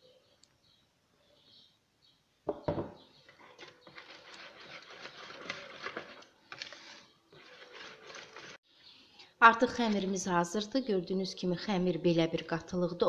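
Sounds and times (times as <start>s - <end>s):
batter scraping against bowl: 3.3s - 8.6s.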